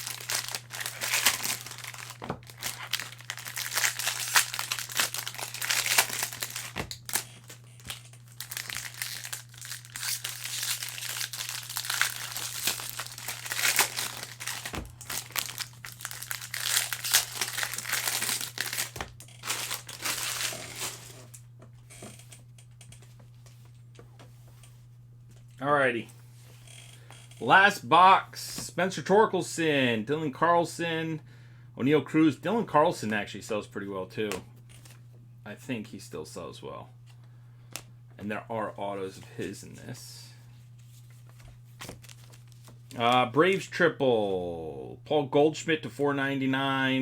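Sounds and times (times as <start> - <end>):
plastic wrapping crinkling: 0.0 - 21.4, 40.9 - 43.1.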